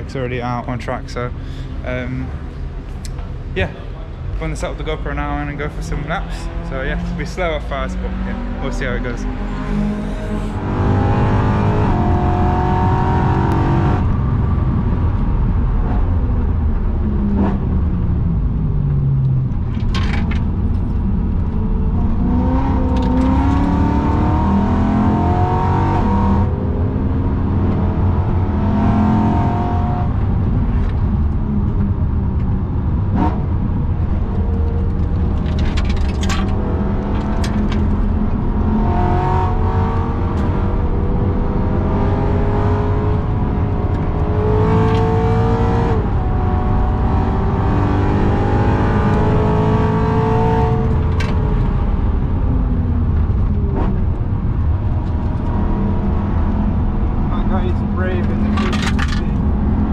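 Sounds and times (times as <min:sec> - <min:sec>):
car engine revving from cabin: 0:06.0 - 0:14.1, 0:21.9 - 0:30.6, 0:33.0 - 0:51.9
exhaust cracks: 0:30.0 - 0:38.7, 0:56.8 - 0:59.9.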